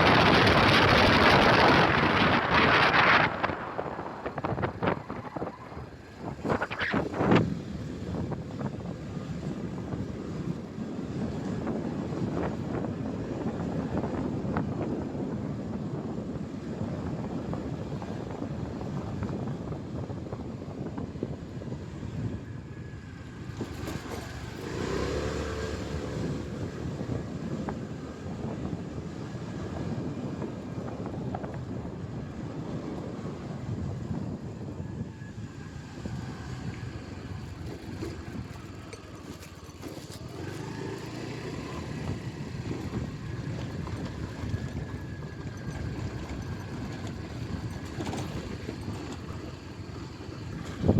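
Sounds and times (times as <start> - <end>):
road traffic: 0.0 - 50.9
wind on microphone: 0.0 - 50.9
motorcycle engine: 22.3 - 30.1, 33.5 - 50.9.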